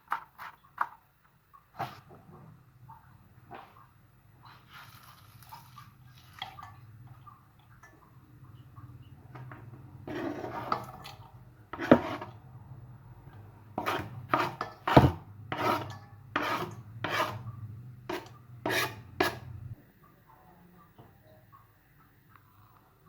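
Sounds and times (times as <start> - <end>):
low steady hum: 2.0 - 23.0
rasping scrapes: 10.1 - 11.0, 11.8 - 12.4, 13.8 - 19.7.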